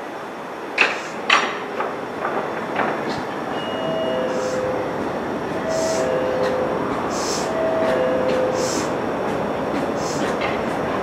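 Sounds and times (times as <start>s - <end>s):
train rumbling on rails: 0.0s - 11.0s
wheels knocking over rail joints: 0.8s - 3.5s
two-note descending tone: 3.5s - 9.0s.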